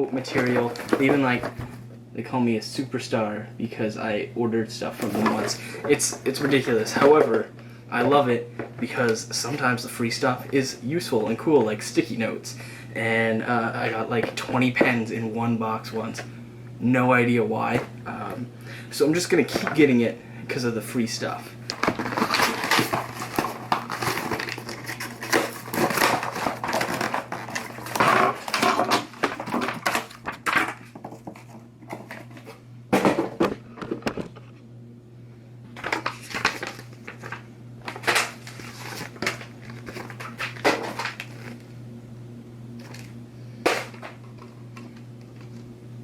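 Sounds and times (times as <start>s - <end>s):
steady low hum: 0.0s - 46.0s
packaging crinkling and rustling: 0.2s - 1.8s, 5.0s - 9.6s, 21.7s - 32.6s, 35.8s - 41.7s, 42.8s - 43.1s.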